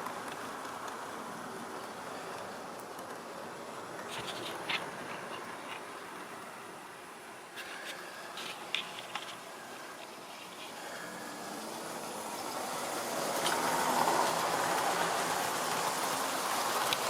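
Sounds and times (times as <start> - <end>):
model train running on track: 0.0 - 17.0.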